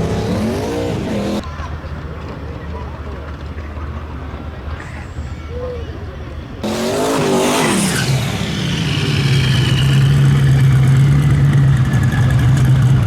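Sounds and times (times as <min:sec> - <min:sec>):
loud racing engine drone: 0:00.0 - 0:01.4, 0:06.6 - 0:13.0.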